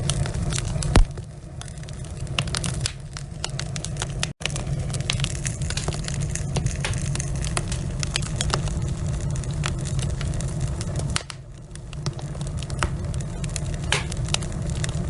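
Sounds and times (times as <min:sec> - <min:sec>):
burning logs crackling and popping: 0:00.0 - 0:15.0
low rumble of flames: 0:00.0 - 0:15.0.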